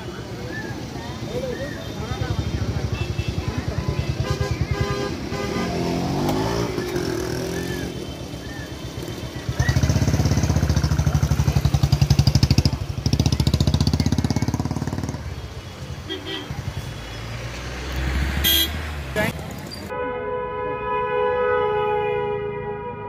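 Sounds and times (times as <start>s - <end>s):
slow traffic: 0.0s - 23.0s
motorcycle engine running: 2.3s - 15.5s.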